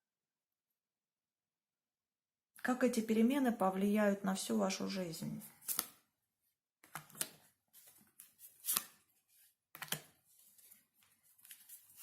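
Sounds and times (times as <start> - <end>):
cards sliding rustles: 5.6 - 6.0, 6.8 - 12.0
cards snapping and tapping: 5.6 - 6.0, 6.8 - 7.4, 8.6 - 9.0, 9.8 - 10.2.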